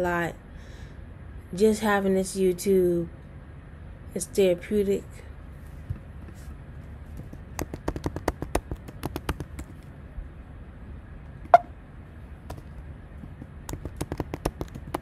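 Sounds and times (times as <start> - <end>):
quick tapping clicks: 7.5 - 9.7, 13.7 - 15.0.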